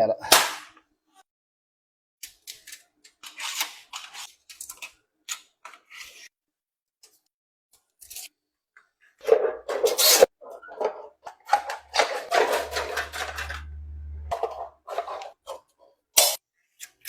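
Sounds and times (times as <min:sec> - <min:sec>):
metal scraping and rasping: 0:09.2 - 0:15.4
low steady hum: 0:11.8 - 0:14.6.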